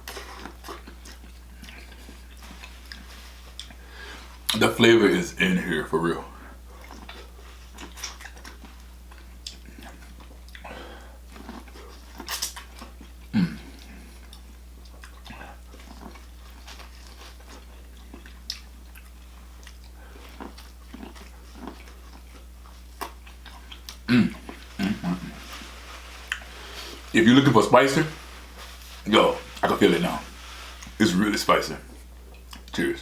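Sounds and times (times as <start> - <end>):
chewing and biting food: 0.0 - 4.6, 6.5 - 31.1, 31.8 - 32.8
wet mouth clicks and smacks: 12.2 - 12.7
slurps: 23.0 - 31.3.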